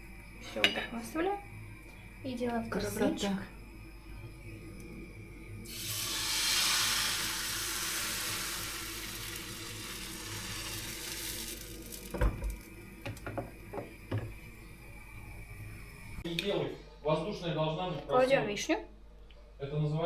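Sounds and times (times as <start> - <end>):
batter sizzling in a frying pan: 5.6 - 14.6.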